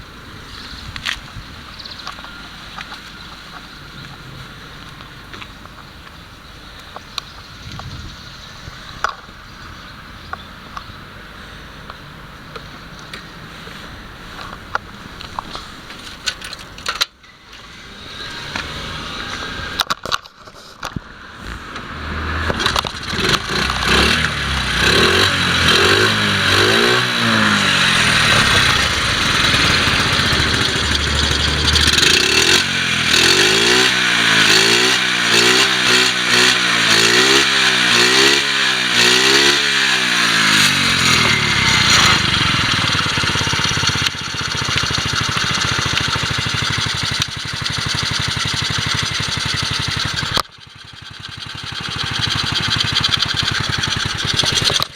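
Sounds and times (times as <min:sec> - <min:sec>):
motorcycle engine revving and idling: 0:12.1 - 0:54.9.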